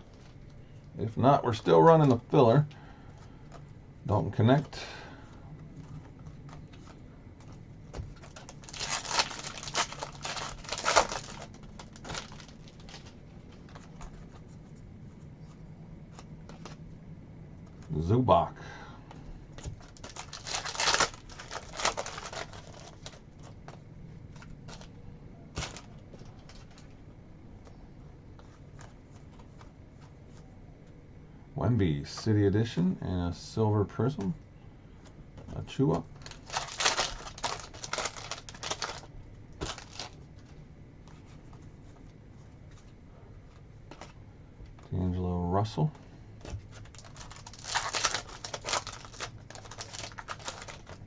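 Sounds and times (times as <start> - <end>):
card packs rustling: 5.6 - 14.8, 19.5 - 27.0, 35.5 - 44.9, 46.4 - 51.0.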